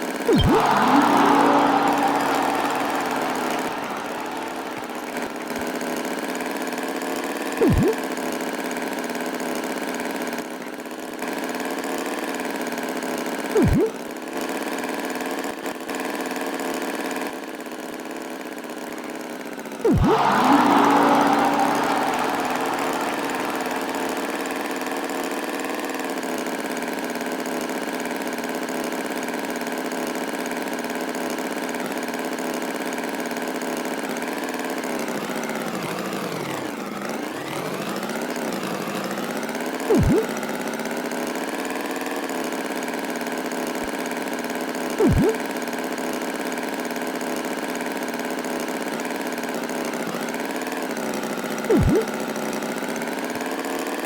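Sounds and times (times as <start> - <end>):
short loud blips: 0.3 - 5.7, 7.6 - 8.0, 13.6 - 14.0, 19.9 - 25.2, 39.9 - 40.4, 45.0 - 45.4, 51.7 - 52.2.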